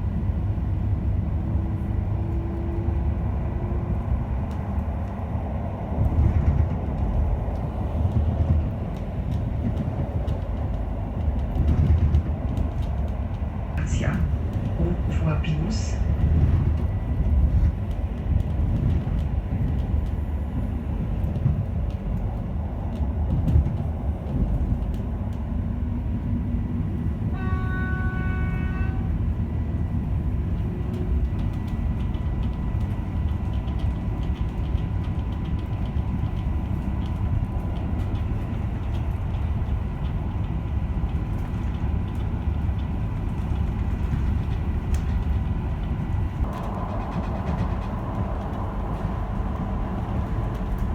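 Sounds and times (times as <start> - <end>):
electric train rumbling: 0.0 - 50.9
train horn: 27.3 - 29.3.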